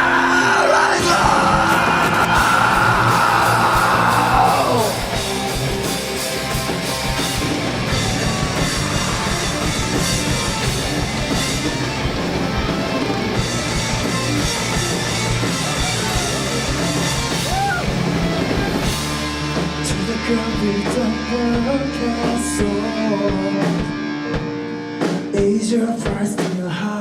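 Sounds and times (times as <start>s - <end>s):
screamed vocal: 0.0s - 5.2s, 17.4s - 18.0s
metal band playing loud: 0.0s - 27.0s.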